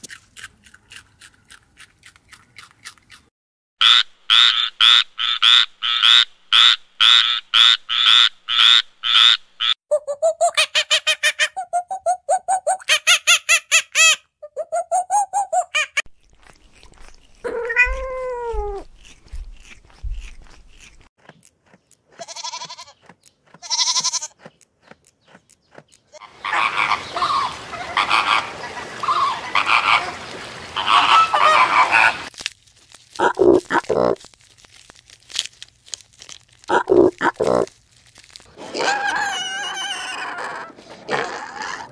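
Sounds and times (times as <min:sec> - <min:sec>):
animal calls: 0:30.8 - 0:32.3, 0:38.6 - 0:41.9.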